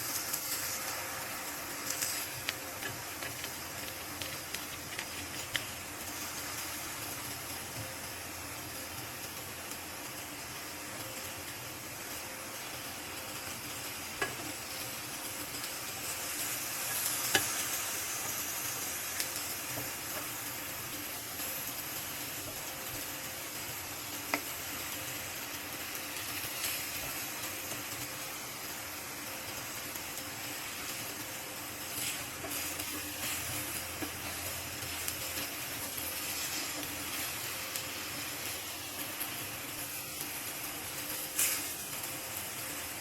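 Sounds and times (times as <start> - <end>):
omelette sizzling in oil: 0.0 - 43.0.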